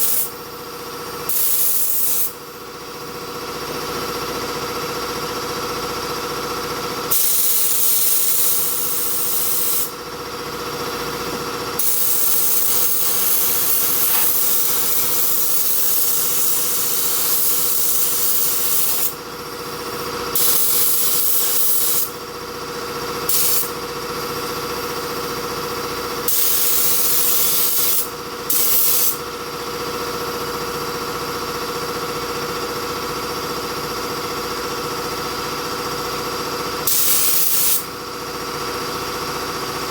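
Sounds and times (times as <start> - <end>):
spray gun hissing: 0.0 - 0.4, 1.3 - 2.4, 7.1 - 9.9, 11.2 - 19.2, 23.3 - 23.7, 36.8 - 37.9.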